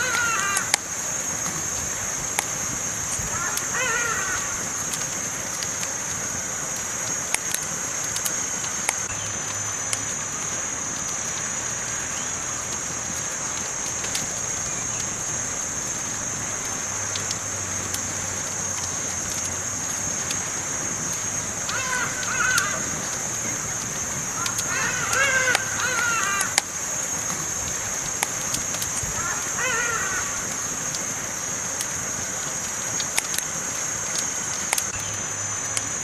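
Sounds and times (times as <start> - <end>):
campfire crackling and popping: 0.0 - 36.0
wavering pitched call: 3.3 - 4.6, 24.3 - 26.6, 29.2 - 30.5.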